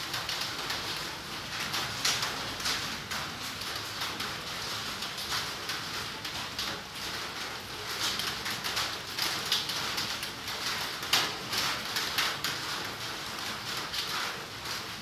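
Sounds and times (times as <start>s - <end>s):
rain pattering on foliage: 0.0s - 15.0s.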